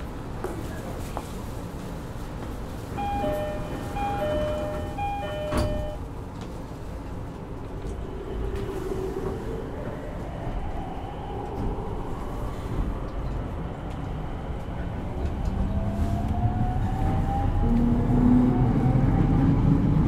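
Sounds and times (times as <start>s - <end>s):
train car noise: 0.0s - 20.0s
train doors shutting: 2.5s - 6.6s
two-note door chime: 3.0s - 6.0s.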